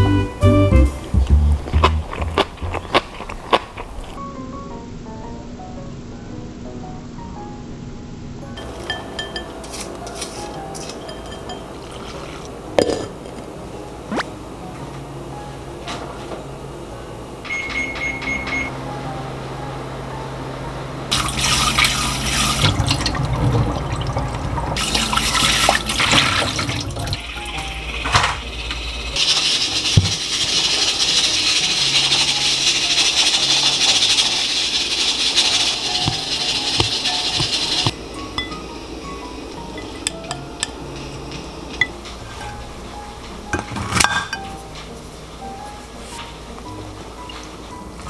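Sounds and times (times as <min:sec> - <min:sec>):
appliance high beeps: 0:17.4 - 0:18.9
tap running into sink: 0:21.1 - 0:30.9, 0:36.0 - 0:38.6.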